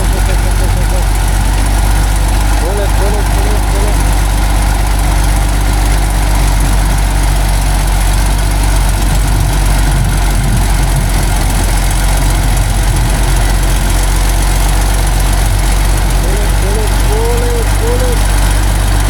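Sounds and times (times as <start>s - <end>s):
truck engine straining: 0.0s - 19.0s.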